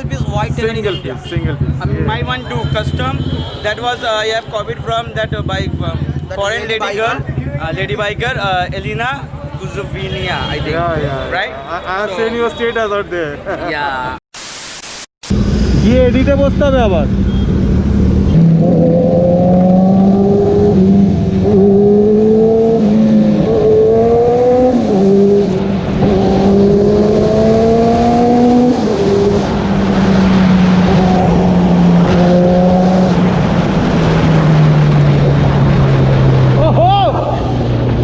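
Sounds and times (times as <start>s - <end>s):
road and wind noise: 0.0s - 14.2s, 15.2s - 38.0s
motorbike engine accelerating: 15.3s - 38.0s.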